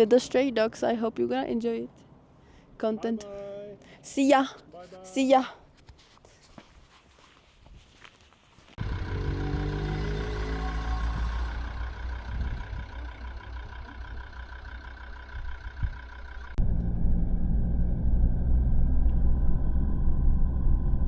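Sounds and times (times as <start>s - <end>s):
road noise: 7.3s - 21.0s
vehicle engine droning: 8.8s - 21.0s.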